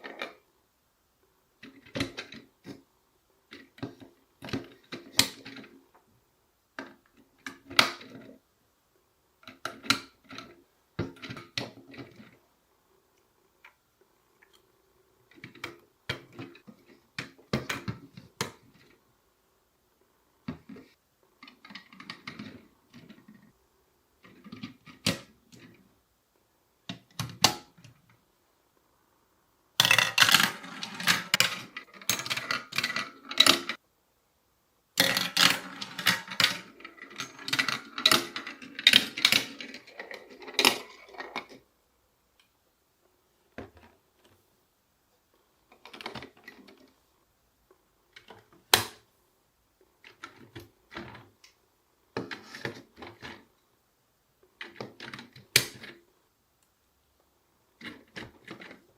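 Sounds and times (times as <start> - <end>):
marbles rolling and clacking: 29.8 - 33.8, 35.0 - 41.6.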